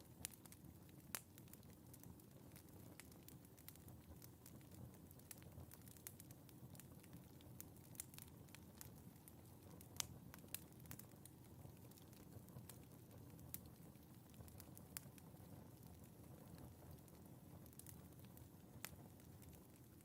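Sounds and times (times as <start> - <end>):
fire crackling and popping: 0.0 - 20.0
low rumble of flames: 0.0 - 20.0.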